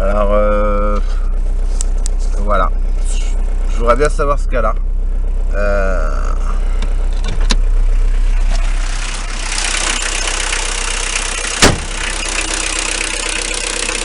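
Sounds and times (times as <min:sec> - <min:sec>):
diesel car engine running: 0:00.0 - 0:14.0
loud sharp engine knock: 0:11.2 - 0:14.0.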